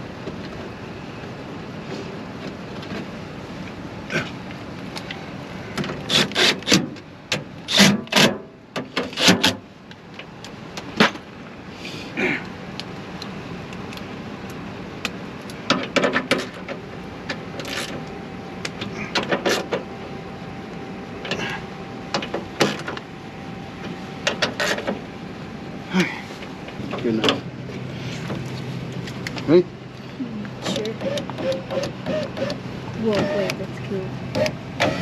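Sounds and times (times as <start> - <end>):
steady background noise: 0.0 - 35.0.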